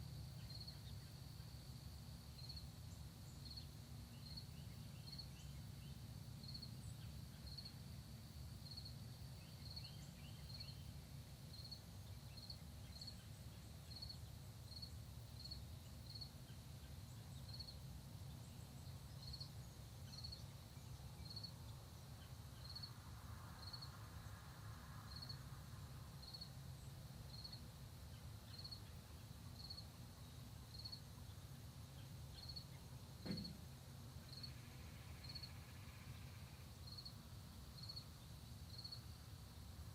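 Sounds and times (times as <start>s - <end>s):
faint cricket chirping: 0.0s - 39.9s
sharp knock: 33.2s - 33.7s.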